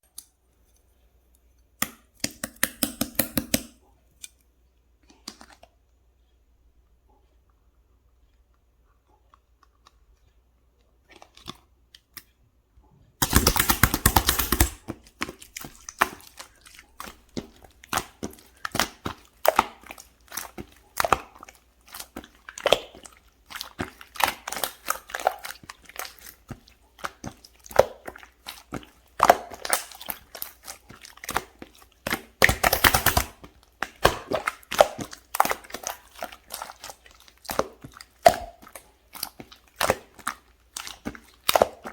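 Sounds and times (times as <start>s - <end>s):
slime squishing with wet clicks: 0.0s - 12.6s, 13.2s - 41.9s
slime rapid crackling: 13.2s - 41.9s.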